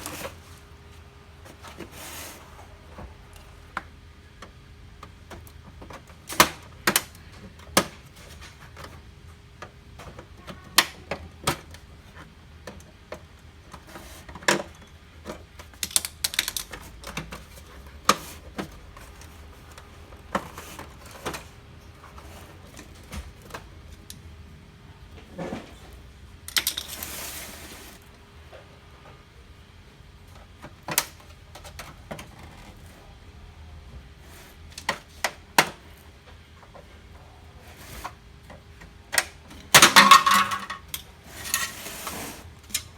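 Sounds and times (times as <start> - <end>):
scraping rustle: 1.4 - 2.8, 26.9 - 28.1, 41.2 - 42.7
plastic parts clicking: 14.4 - 20.5.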